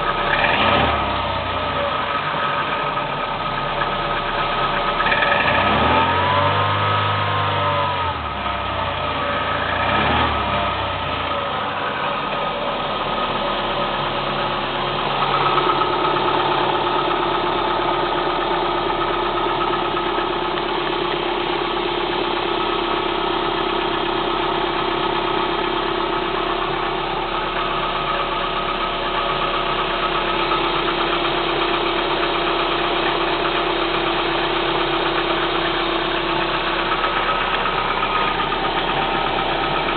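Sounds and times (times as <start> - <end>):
car engine revving: 0.0 - 23.8, 24.4 - 39.9
engine idling with knocking rattle: 0.0 - 39.9.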